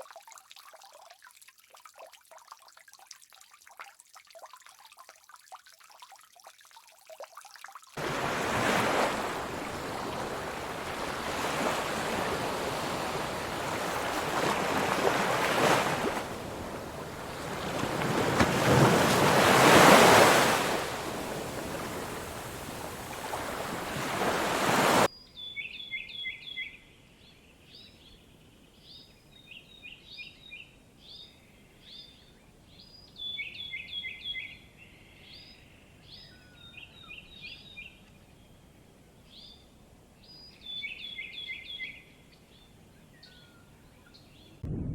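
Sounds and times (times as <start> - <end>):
surf rushing in: 8.0 - 25.1.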